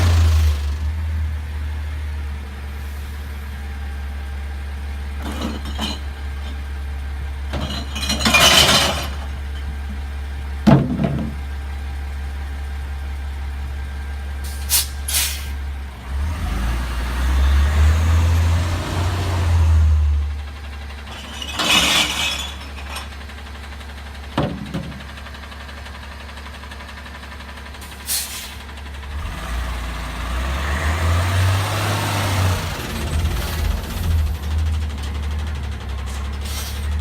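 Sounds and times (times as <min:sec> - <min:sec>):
garbage truck engine droning: 0:00.0 - 0:37.0
hiss: 0:14.4 - 0:15.6, 0:27.8 - 0:28.7.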